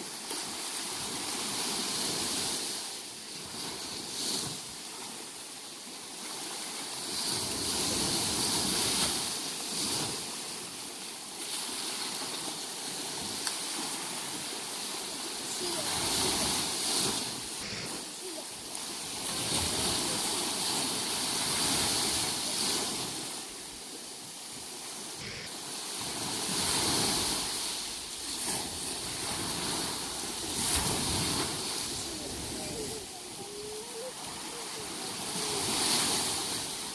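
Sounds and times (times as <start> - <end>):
sea waves breaking: 0.0 - 36.9
wind: 0.0 - 36.9.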